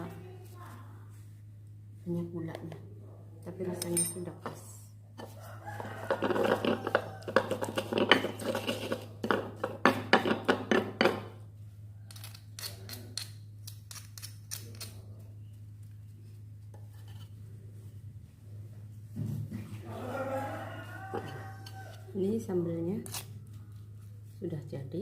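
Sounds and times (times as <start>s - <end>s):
utensils clattering against dishes: 6.1s - 11.3s.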